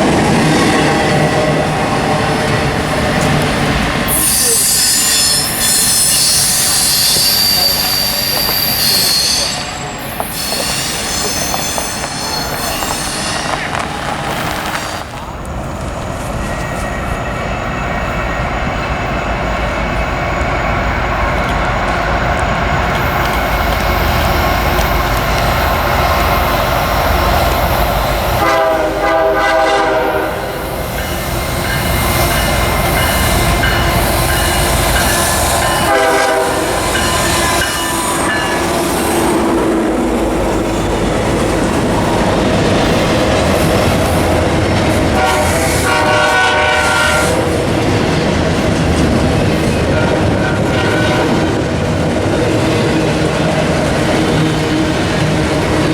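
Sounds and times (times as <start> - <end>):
train rolling past: 0.0 - 55.9
locomotive horn blasts: 28.4 - 30.6, 33.5 - 37.0, 45.1 - 47.5, 49.9 - 51.4.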